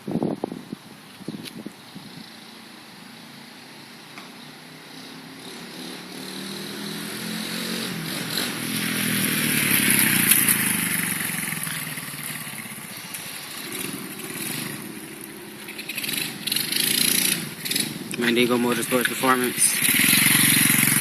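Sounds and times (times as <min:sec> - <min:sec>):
motorbike engine running: 0:06.1 - 0:21.0.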